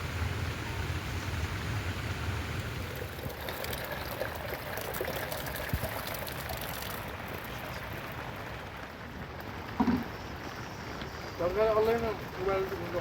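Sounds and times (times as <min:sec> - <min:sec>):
steady rain: 0:00.0 - 0:13.0
water trickling: 0:02.4 - 0:13.0
short knock: 0:09.8 - 0:10.1.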